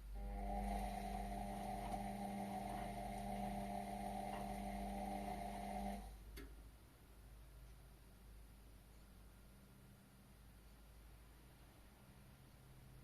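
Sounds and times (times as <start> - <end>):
drain pump humming: 0.0 - 6.1.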